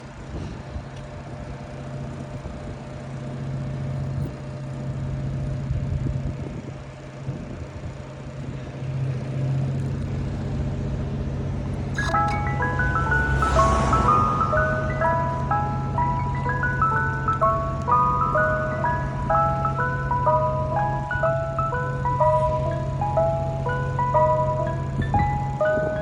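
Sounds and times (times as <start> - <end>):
truck engine running: 1.0 - 26.0.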